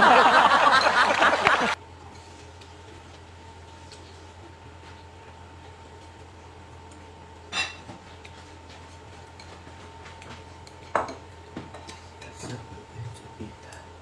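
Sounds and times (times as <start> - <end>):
dish clinking: 7.5 - 7.9.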